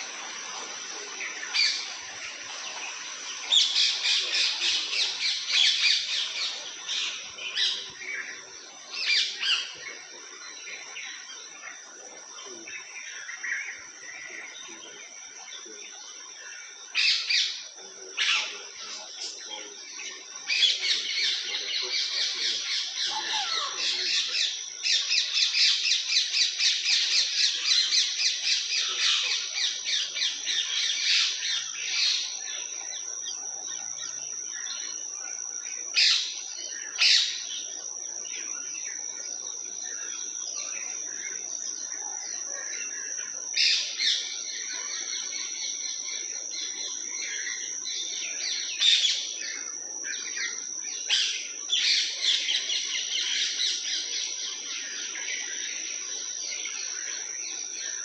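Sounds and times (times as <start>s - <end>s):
birds chirping: 0.0s - 58.0s
steady high-pitched whine: 0.0s - 58.0s.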